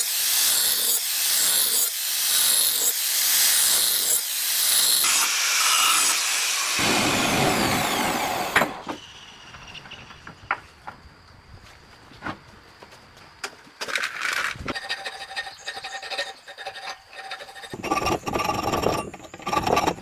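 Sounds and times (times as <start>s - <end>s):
blade grinding on power grinder: 0.0s - 8.8s, 14.7s - 20.0s.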